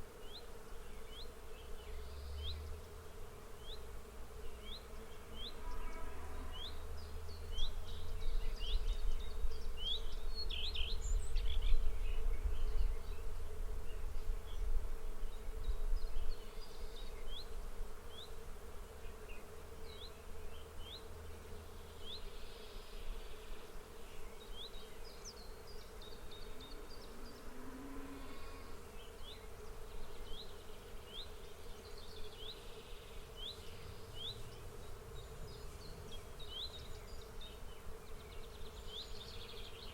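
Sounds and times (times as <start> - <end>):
insects buzzing: 0.0 - 39.9
bird chirping: 29.0 - 39.9.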